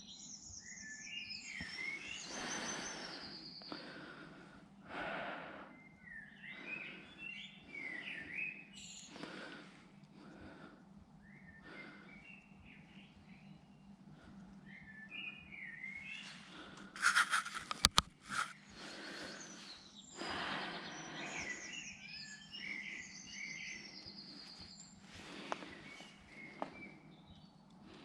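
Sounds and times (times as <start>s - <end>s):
birds chirping and singing: 0.0s - 4.4s, 5.8s - 10.6s, 11.2s - 27.6s
rustling noise: 17.0s - 18.6s.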